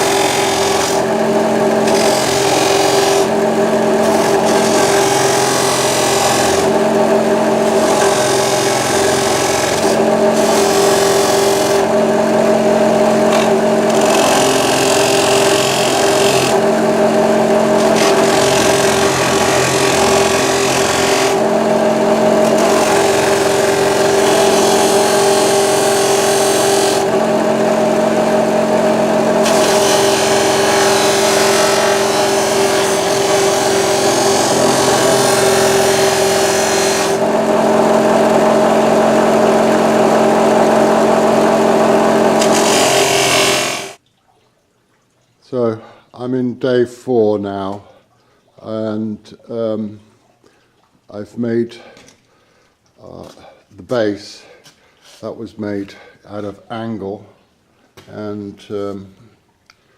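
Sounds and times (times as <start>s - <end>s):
polishing machine motor hum: 0.0s - 44.0s.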